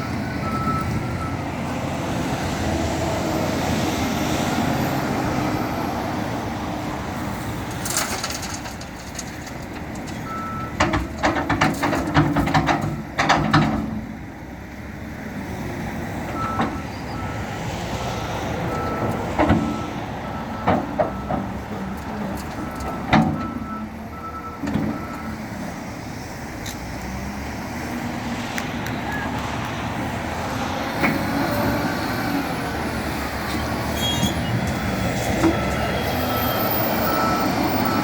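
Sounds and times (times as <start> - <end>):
loader engine running under load: 0.0 - 38.0
reversing alarm beeps: 0.4 - 1.4
knocks and clatter: 7.7 - 14.1.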